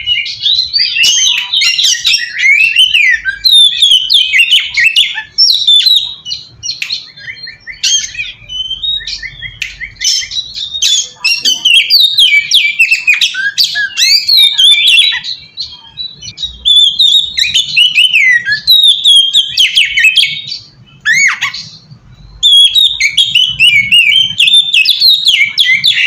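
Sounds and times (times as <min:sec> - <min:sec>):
songbird singing whistles and trills: 0:00.0 - 0:26.0.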